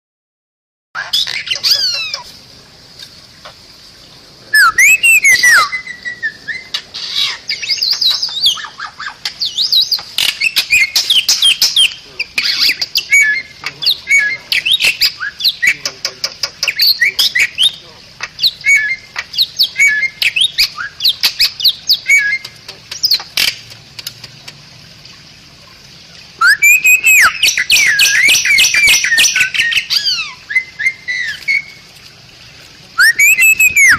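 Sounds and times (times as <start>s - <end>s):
myna bird squawking and whistling: 1.0s - 2.3s, 4.5s - 23.5s, 26.4s - 31.8s, 33.0s - 33.9s.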